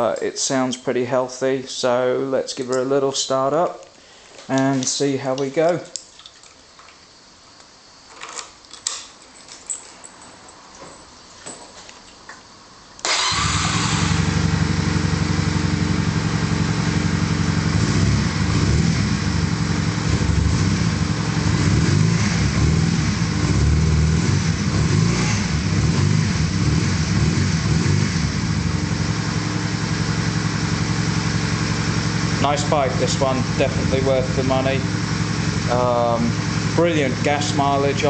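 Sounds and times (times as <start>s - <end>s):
motorcycle engine starting and running: 13.0s - 38.0s.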